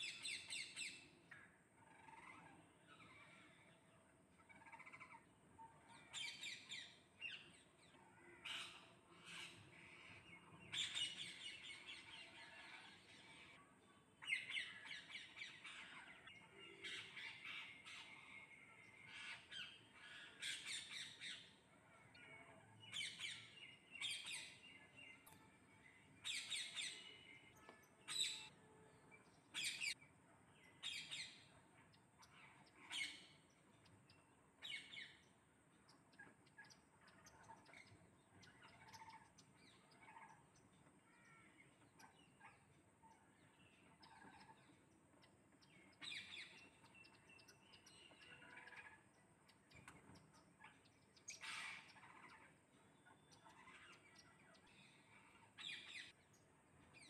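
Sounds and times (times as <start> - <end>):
parrots squawking and chattering: 1.8 - 3.7, 4.3 - 6.8, 8.2 - 13.6, 14.2 - 24.8, 32.2 - 33.4, 38.5 - 43.2, 43.9 - 44.8, 46.0 - 49.1, 49.8 - 56.1.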